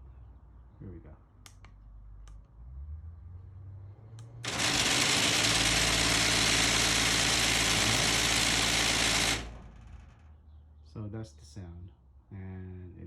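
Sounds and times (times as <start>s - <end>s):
click: 1.4s - 2.5s
garage door opener motor grinding: 4.4s - 10.4s.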